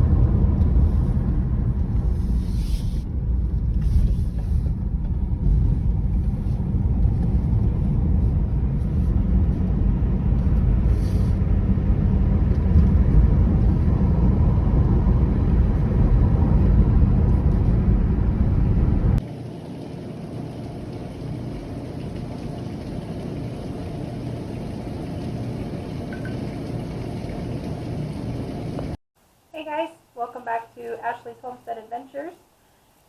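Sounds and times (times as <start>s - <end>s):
low rumble with hiss: 0.0s - 32.1s.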